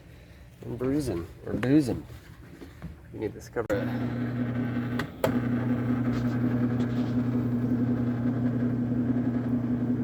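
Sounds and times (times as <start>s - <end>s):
electric motor humming: 3.7s - 10.0s.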